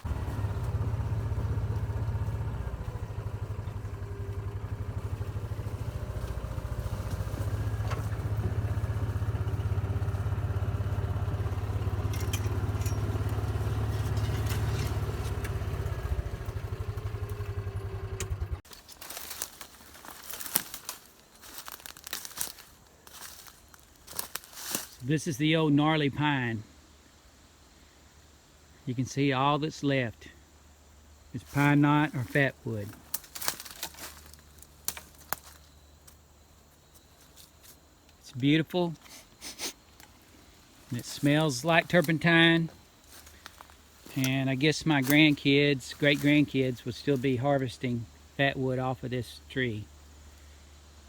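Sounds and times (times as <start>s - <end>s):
crackles and rustles: 0.0s - 17.5s, 18.6s - 25.1s, 31.4s - 38.3s, 39.0s - 47.7s
vehicle engine running: 0.0s - 20.7s, 31.4s - 37.6s, 40.4s - 51.0s.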